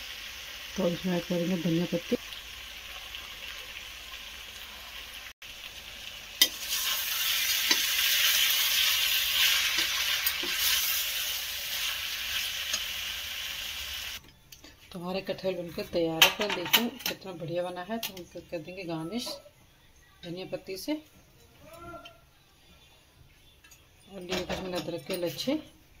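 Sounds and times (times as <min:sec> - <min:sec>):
curry sizzling in a pan: 0:00.0 - 0:14.2.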